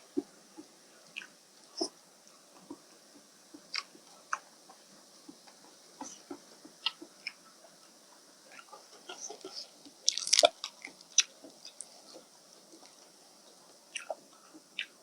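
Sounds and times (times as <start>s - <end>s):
wet mouth smacks and clicks: 10.1s - 11.3s
person chewing noodles: 10.1s - 12.2s, 13.9s - 15.0s.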